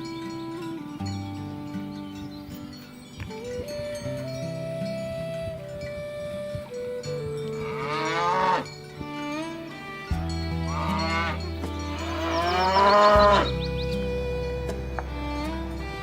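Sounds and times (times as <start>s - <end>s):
background music with bass line: 7.0s - 16.0s
cow mooing: 7.5s - 8.7s, 10.6s - 13.6s.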